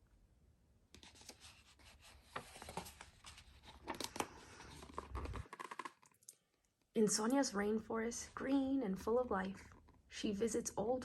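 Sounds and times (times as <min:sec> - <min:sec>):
paper page rustling and turning: 0:01.0 - 0:06.1.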